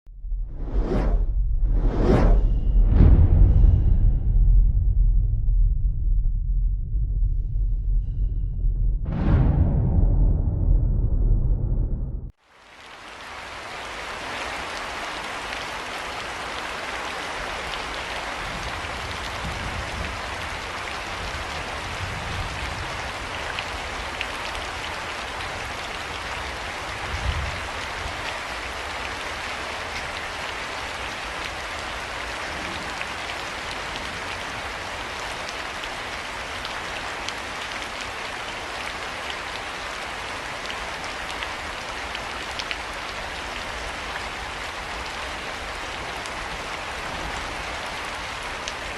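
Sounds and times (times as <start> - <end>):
low rumbles: 0.0 - 12.4
steady rain falling: 12.4 - 48.9.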